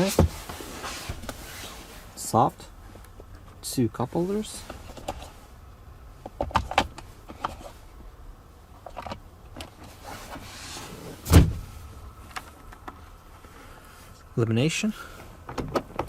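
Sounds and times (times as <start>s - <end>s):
loud thump: 11.2s - 11.7s.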